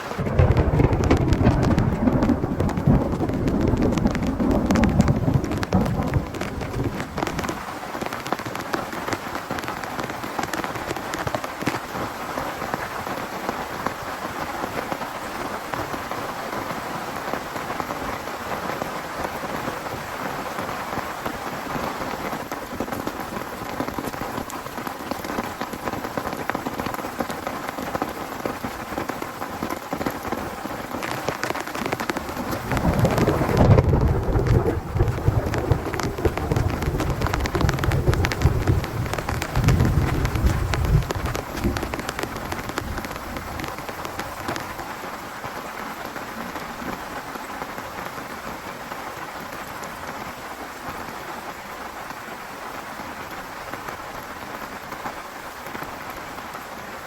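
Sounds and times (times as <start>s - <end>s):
low rumble of thunder: 0.0s - 7.6s, 32.1s - 44.4s
heavy rain on a tent: 0.0s - 57.0s.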